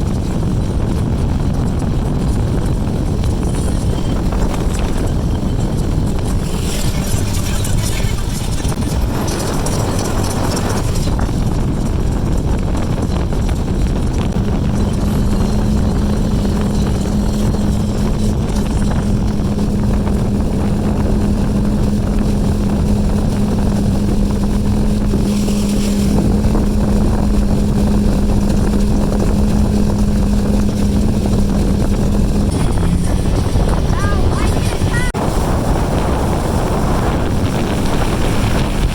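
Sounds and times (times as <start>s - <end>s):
motorboat engine drone: 0.0s - 38.9s
wind buffeting microphone: 0.0s - 38.9s.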